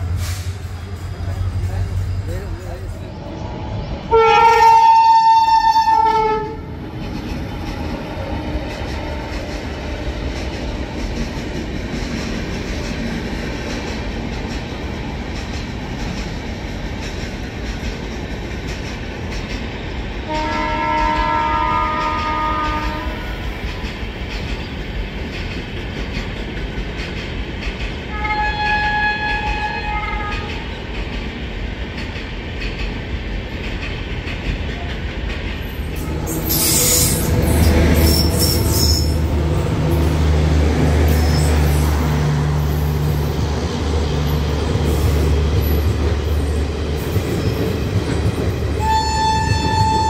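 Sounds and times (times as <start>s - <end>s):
train rumbling and clattering: 0.0s - 50.0s
locomotive horn blasts: 4.1s - 6.6s, 20.3s - 23.3s, 28.1s - 30.5s, 48.8s - 50.0s.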